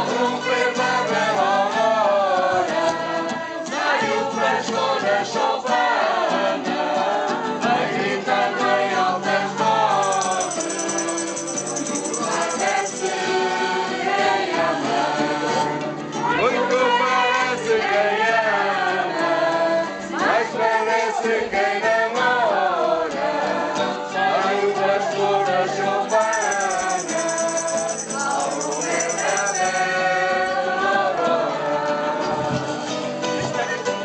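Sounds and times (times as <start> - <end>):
group of voices singing: 0.0 - 34.0
instrumental accompaniment: 9.9 - 13.8.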